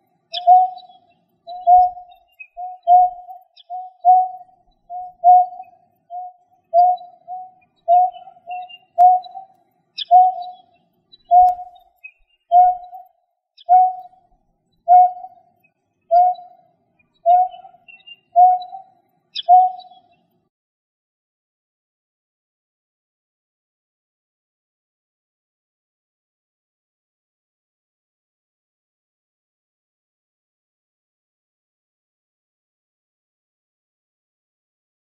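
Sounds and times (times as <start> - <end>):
low hollow bird call: 0.0 - 20.3
faint high bird chirps: 0.0 - 20.5.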